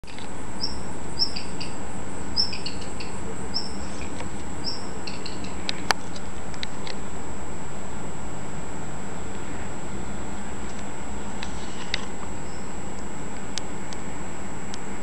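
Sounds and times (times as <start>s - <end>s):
small birds calling: 0.5s - 6.0s, 11.6s - 12.8s.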